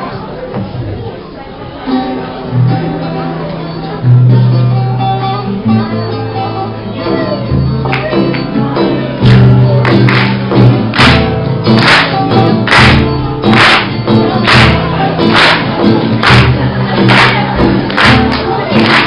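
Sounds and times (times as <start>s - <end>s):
band music with guitar and bass: 1.8s - 19.0s
sharp regular beats: 9.2s - 19.0s.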